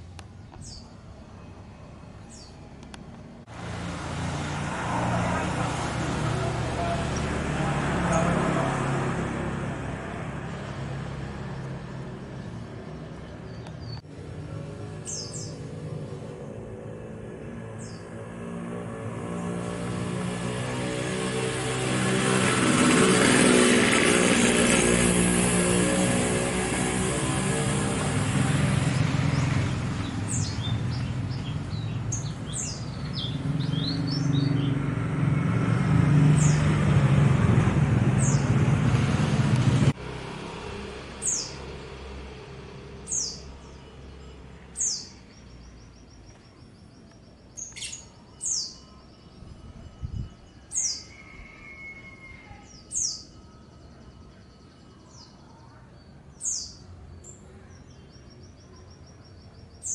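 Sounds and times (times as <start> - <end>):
songbirds chirping: 0.0 - 4.0, 5.0 - 22.2, 25.4 - 36.9, 40.8 - 59.9
loud low engine rumble: 0.0 - 44.9
bird trill: 15.0 - 15.6, 43.0 - 55.6.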